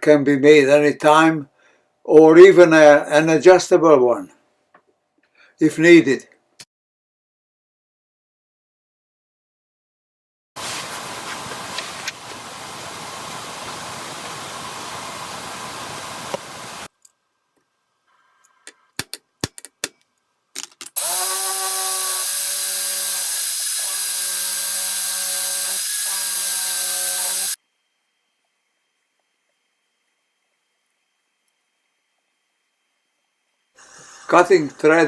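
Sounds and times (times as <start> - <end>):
sharp clicks and knocks: 18.7 - 21.0
motor whining: 21.0 - 27.6
power tool machining noise: 21.0 - 27.6.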